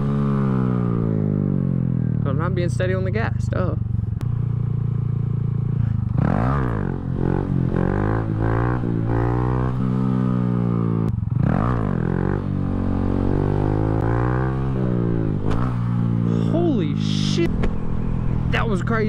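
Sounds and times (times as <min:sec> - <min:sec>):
motorcycle engine revving hard: 0:05.1 - 0:18.7.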